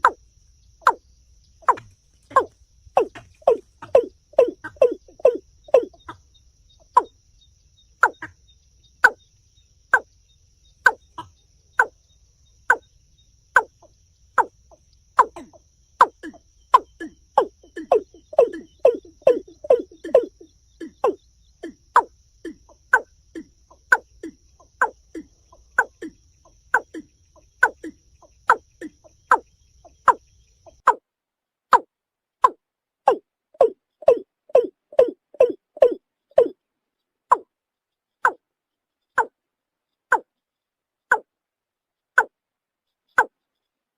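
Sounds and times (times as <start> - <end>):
bird calling hollow notes: 0.0 - 0.2, 0.8 - 1.0, 1.6 - 6.2, 8.0 - 8.4, 14.4 - 31.0, 31.7 - 36.6.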